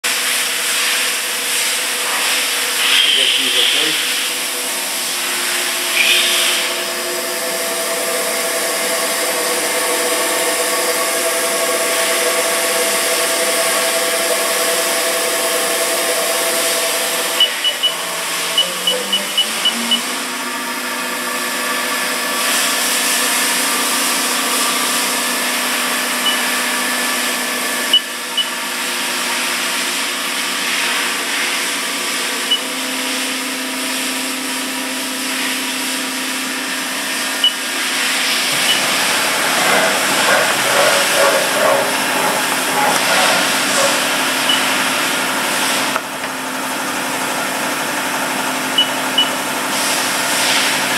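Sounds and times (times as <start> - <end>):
short high electronic beeps: 18.6 - 20.1
lathe humming: 37.2 - 48.7.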